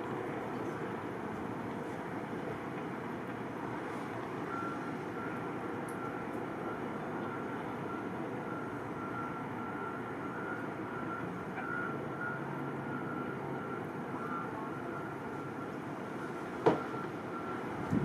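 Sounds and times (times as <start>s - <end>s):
diesel engine rumble: 0.0s - 18.0s
traffic: 0.0s - 18.0s
reversing alarm beeping: 3.8s - 18.0s.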